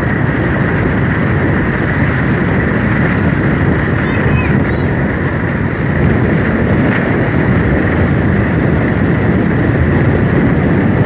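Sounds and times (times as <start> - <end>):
road noise: 0.0 - 11.0
wind noise on microphone: 0.0 - 11.0.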